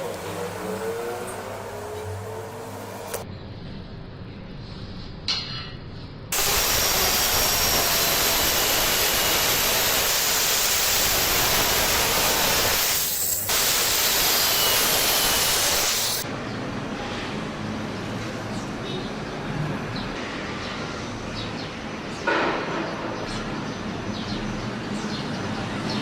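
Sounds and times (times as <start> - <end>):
welding arc hissing: 6.3 - 16.2.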